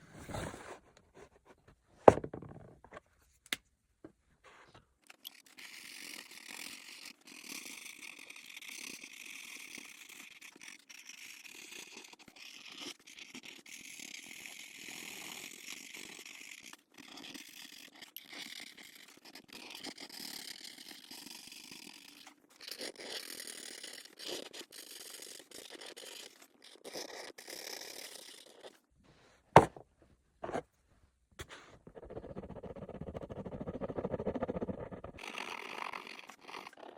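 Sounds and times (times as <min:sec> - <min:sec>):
coloring tool scratching on paper: 0:05.1 - 0:28.8, 0:31.4 - 0:36.9.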